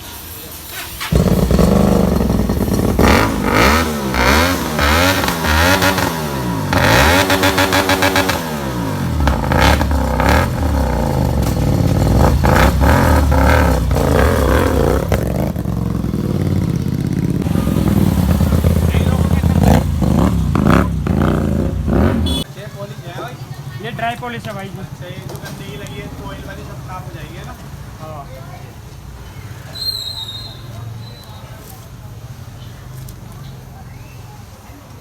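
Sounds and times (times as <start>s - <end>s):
motorcycle engine revving: 1.0s - 22.5s.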